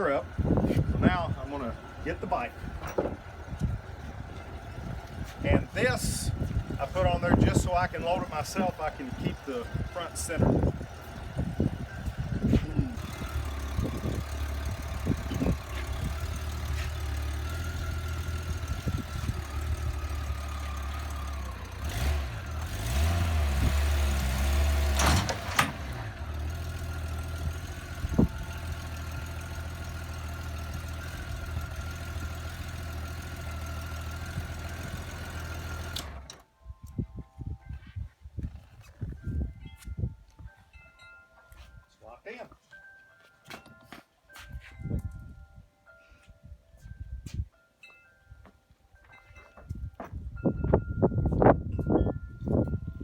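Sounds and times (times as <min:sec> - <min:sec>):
motorcycle engine idling and revving: 0:00.0 - 0:36.5.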